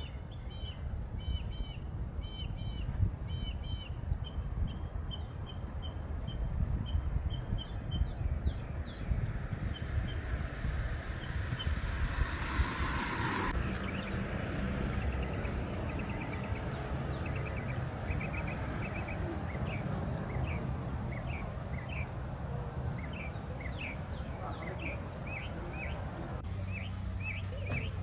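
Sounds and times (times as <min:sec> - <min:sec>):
small birds chirping: 0:05.1 - 0:28.0
steady low rumble: 0:07.3 - 0:19.0
hiss: 0:09.8 - 0:13.6.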